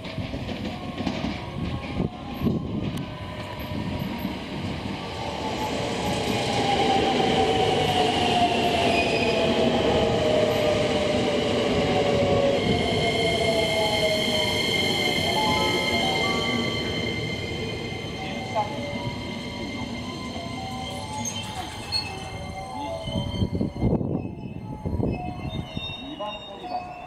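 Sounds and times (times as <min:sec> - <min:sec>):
high squealing tones: 0:13.0 - 0:27.0.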